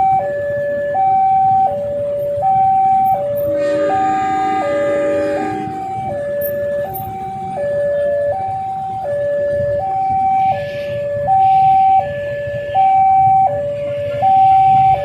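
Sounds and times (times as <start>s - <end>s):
road traffic: 0.0s - 15.0s
level crossing alarm two-tone: 2.4s - 9.2s, 11.3s - 15.0s
vehicle horn: 3.4s - 6.2s.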